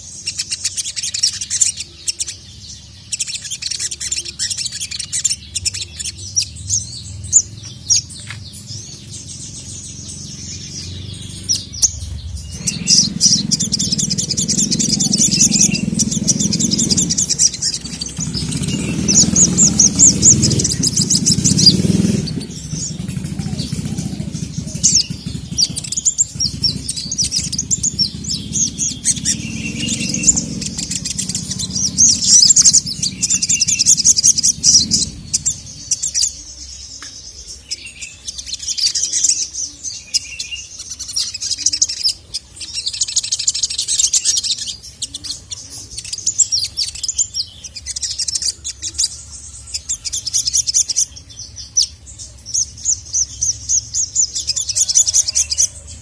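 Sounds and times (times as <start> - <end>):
bird chirps and trills: 0.0 - 56.0
low rumble: 5.4 - 36.4.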